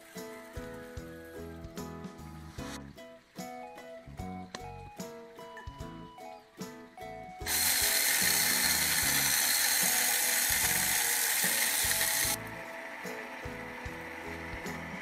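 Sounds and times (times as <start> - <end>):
electric grinder running: 7.5 - 12.4.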